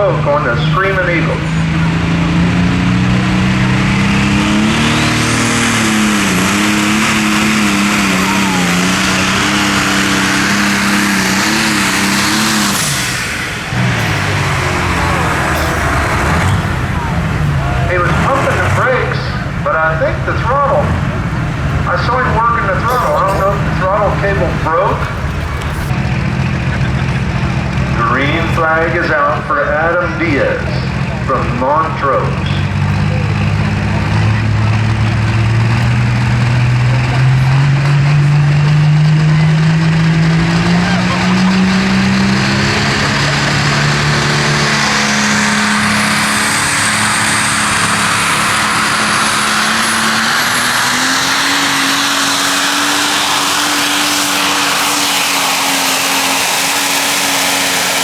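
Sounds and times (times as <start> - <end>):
announcer speaking: 0.0 - 2.0, 7.8 - 11.6, 13.7 - 34.7
tractor engine revving: 0.0 - 58.0.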